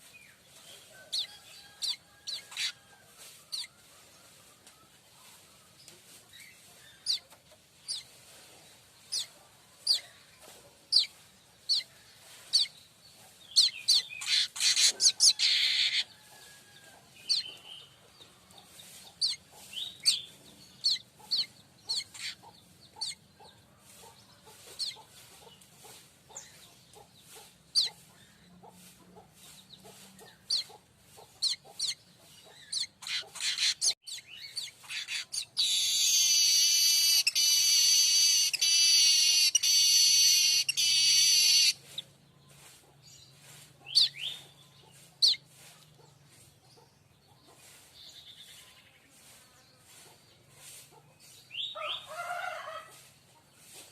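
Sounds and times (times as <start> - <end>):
high bird chirps: 32.6 - 42.0.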